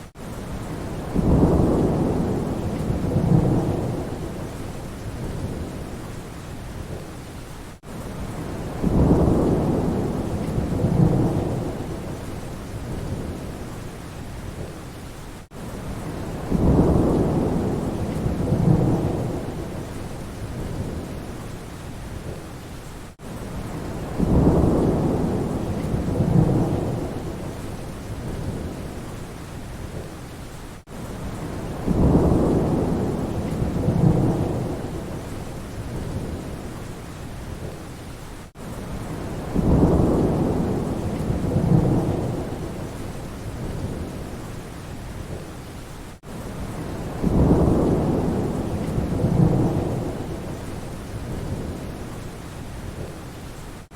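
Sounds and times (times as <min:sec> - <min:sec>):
steady rain: 0:00.0 - 0:53.9
thunder rumbling: 0:00.6 - 0:06.0, 0:08.2 - 0:13.6, 0:15.9 - 0:21.4, 0:23.6 - 0:29.0, 0:31.2 - 0:36.7, 0:38.9 - 0:44.4, 0:46.6 - 0:52.0.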